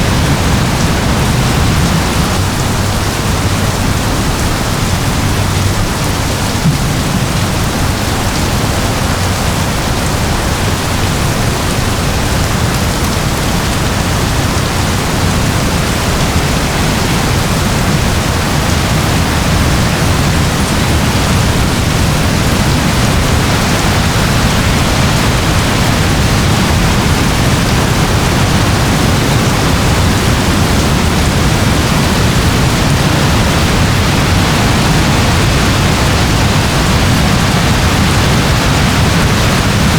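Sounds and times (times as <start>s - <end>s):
low rumble: 0.1s - 11.1s.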